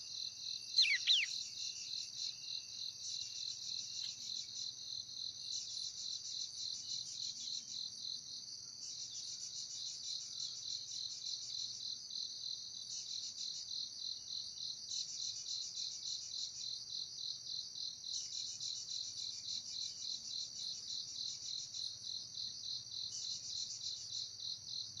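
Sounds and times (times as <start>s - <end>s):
insects trilling: 0.0s - 11.7s
higher insect song: 0.0s - 25.0s.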